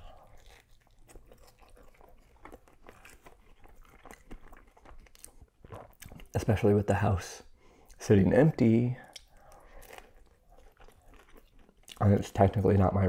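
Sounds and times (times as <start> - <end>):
person biting and chewing food: 0.0 - 6.3, 9.0 - 12.0.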